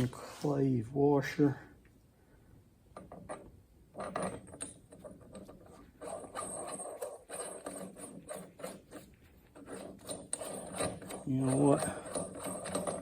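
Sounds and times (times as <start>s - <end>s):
metal clicks and scraping: 2.9s - 13.0s.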